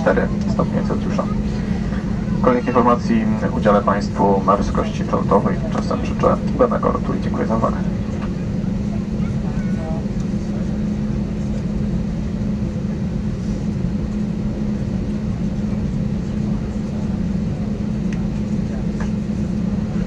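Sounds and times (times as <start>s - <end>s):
cabin air rushing: 0.0s - 5.3s
strong low hum: 0.0s - 20.0s.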